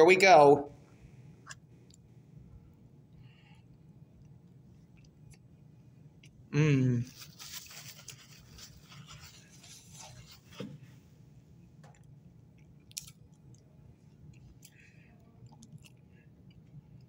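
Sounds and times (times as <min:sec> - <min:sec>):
chewing soft cookie: 0:01.0 - 0:06.5, 0:11.8 - 0:17.0.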